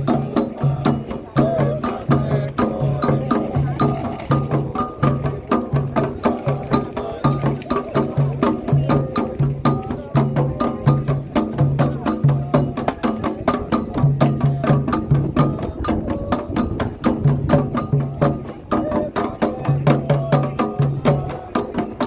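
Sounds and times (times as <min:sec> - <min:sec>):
hand drums playing fast rhythm: 0:00.0 - 0:22.0.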